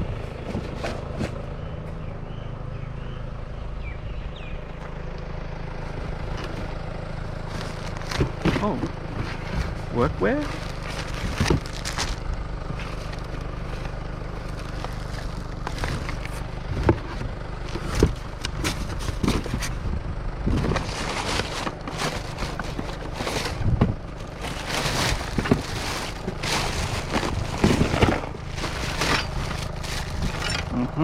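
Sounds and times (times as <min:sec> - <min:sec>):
steady low rumble: 0:00.0 - 0:31.0
items knocking and scraping: 0:00.1 - 0:01.5, 0:07.4 - 0:19.9, 0:20.5 - 0:30.8.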